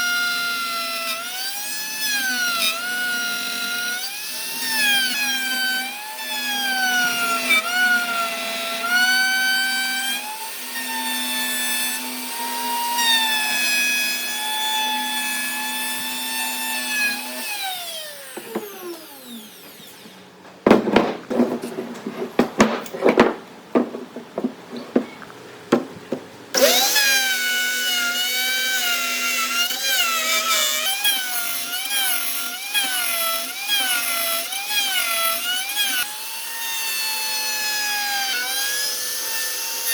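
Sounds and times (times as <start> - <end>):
power tool motor whine: 15.7 - 20.3, 26.5 - 35.1
knocks and clatter: 20.4 - 26.4.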